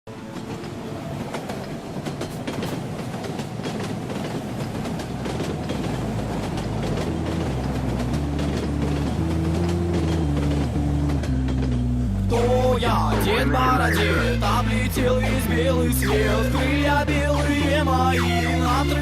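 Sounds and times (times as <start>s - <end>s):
train wheels clicking on rails: 0.1s - 13.3s
low synth notes: 6.8s - 19.0s.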